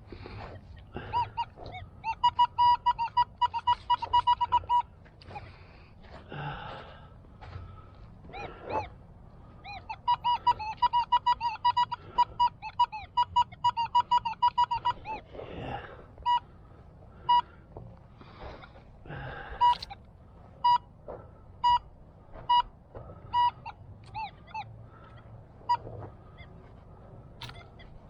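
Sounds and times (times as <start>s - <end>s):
metal detector beeps: 0.1s - 5.5s, 9.6s - 16.5s, 17.2s - 17.6s, 18.3s - 28.0s.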